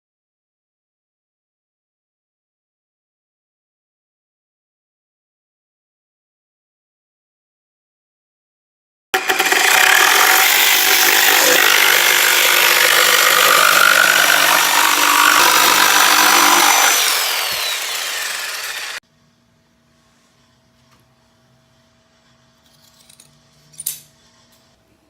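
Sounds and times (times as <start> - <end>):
power saw cutting wood: 9.2 - 19.0.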